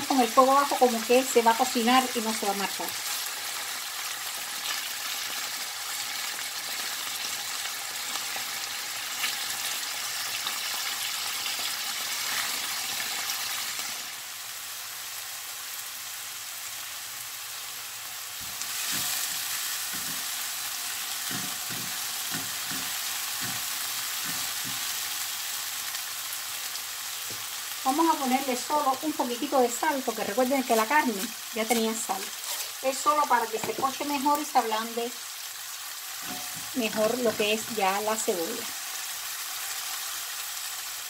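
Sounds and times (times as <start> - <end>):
meat sizzling in a pan: 0.0 - 41.0
vegetables frying: 0.0 - 41.0
spatula scraping and knocking pan: 18.4 - 20.4, 21.1 - 25.1, 31.6 - 32.8, 36.2 - 37.8.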